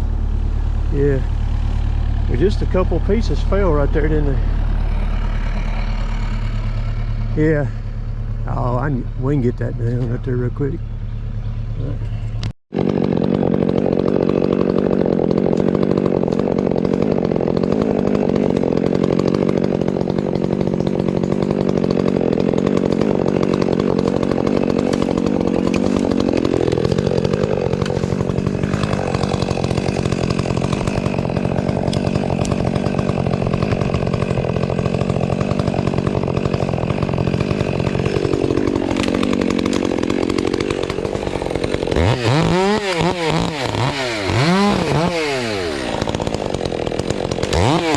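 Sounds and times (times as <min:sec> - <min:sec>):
chainsaw cutting wood: 0:00.0 - 0:47.9
chainsaw revving: 0:00.0 - 0:47.9.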